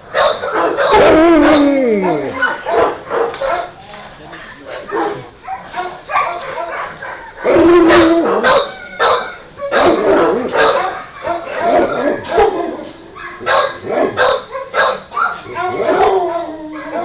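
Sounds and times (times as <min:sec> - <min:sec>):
dogs barking: 0:00.0 - 0:17.0.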